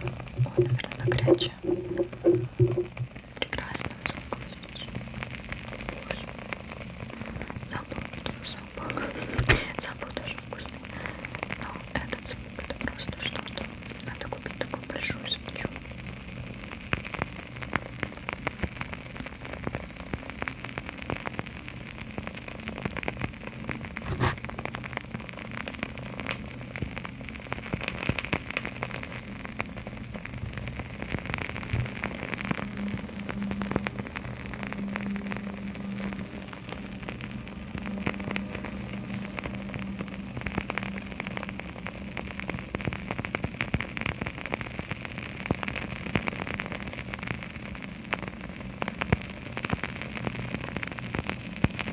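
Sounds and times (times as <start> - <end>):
low steady hum: 0.0 - 20.4, 27.4 - 48.1
crackling candle wicks: 0.0 - 51.9.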